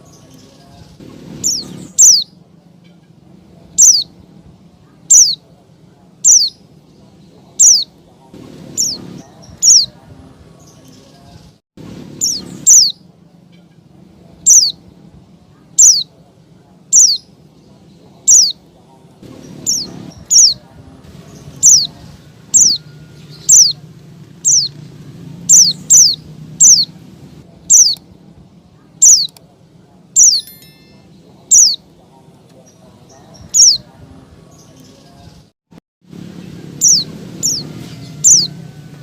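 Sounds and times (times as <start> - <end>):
bird high slurred calls: 1.0 - 2.4, 3.8 - 4.1, 5.1 - 5.4, 6.2 - 6.6, 7.6 - 10.0, 12.2 - 13.6, 14.4 - 14.8, 15.8 - 16.1, 16.9 - 17.4, 18.2 - 18.6, 19.2 - 23.8, 24.4 - 24.8, 25.4 - 28.0, 29.0 - 29.4, 31.5 - 31.8, 33.2 - 33.9, 36.8 - 38.6.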